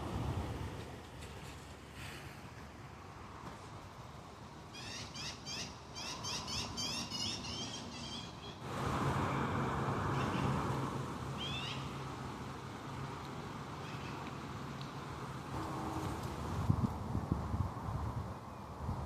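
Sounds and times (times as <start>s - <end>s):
steady rushing noise with hum: 0.0s - 4.7s, 7.8s - 19.0s
bird chirping: 4.8s - 8.6s.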